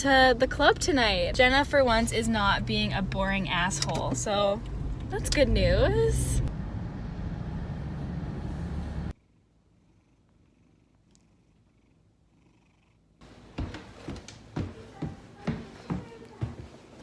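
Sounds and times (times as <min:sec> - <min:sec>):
car cabin road noise: 0:00.0 - 0:09.2.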